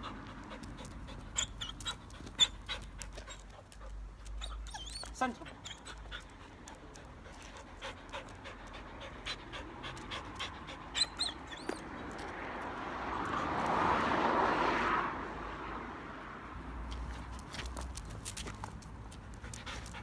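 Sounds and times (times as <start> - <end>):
dog panting: 0.0 - 12.2, 17.1 - 20.0
dog whining: 1.2 - 3.5, 4.2 - 6.3, 10.9 - 12.2.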